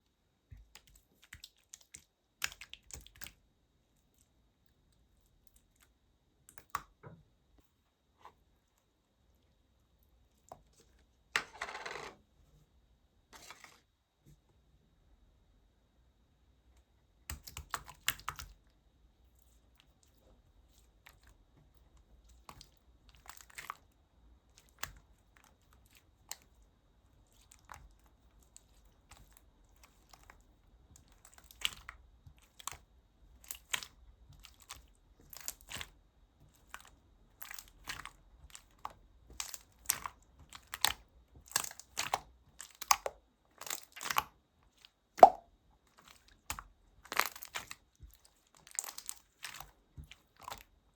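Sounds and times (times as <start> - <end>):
slime crackling and popping: 37.4 - 44.3, 45.2 - 45.4, 46.4 - 49.7.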